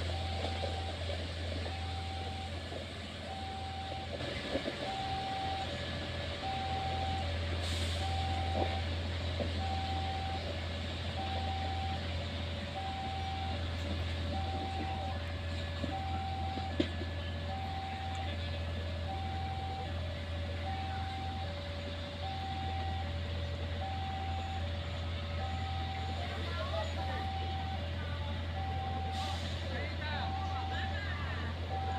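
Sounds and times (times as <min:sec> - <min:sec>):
two-tone warning alarm beeping: 0:00.0 - 0:01.0, 0:01.6 - 0:02.6, 0:03.2 - 0:04.2, 0:04.8 - 0:05.8, 0:06.4 - 0:09.0, 0:09.6 - 0:10.5, 0:11.2 - 0:12.1, 0:12.7 - 0:13.6, 0:14.3 - 0:15.2, 0:15.9 - 0:18.4, 0:19.0 - 0:20.0, 0:20.6 - 0:21.6, 0:22.2 - 0:24.7, 0:25.4 - 0:31.9
engine running: 0:00.0 - 0:31.9.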